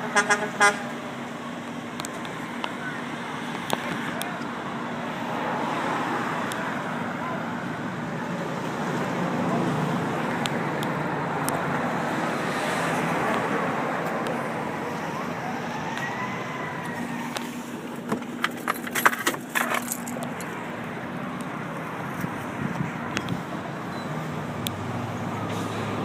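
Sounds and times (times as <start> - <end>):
road traffic passing: 0.0 - 26.0
vehicle engine humming: 0.0 - 26.0
sharp clicks and rattles: 18.0 - 20.6.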